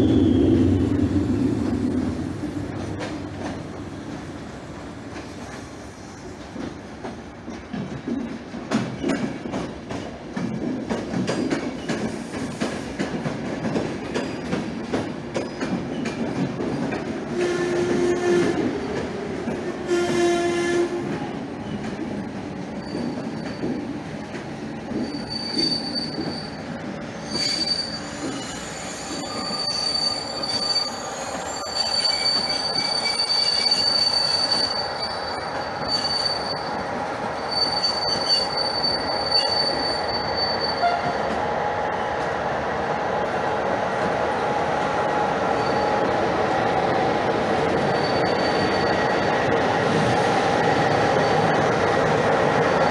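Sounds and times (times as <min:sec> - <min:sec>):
train wheels rumbling on track: 0:00.0 - 0:52.9
train horn blasts: 0:17.4 - 0:18.7, 0:19.8 - 0:21.2, 0:40.8 - 0:41.2
high-pitched wheel squeal: 0:25.0 - 0:26.6, 0:27.2 - 0:36.8, 0:37.4 - 0:41.2, 0:47.8 - 0:49.2.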